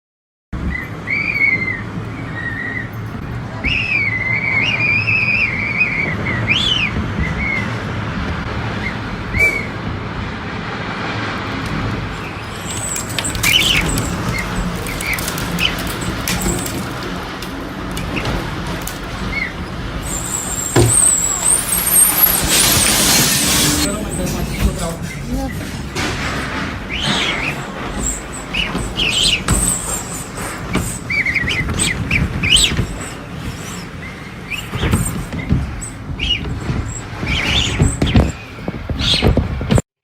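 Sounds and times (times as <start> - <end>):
high chirps and whistles: 0.7 - 3.0, 3.6 - 7.7
steady rushing noise: 17.6 - 33.3.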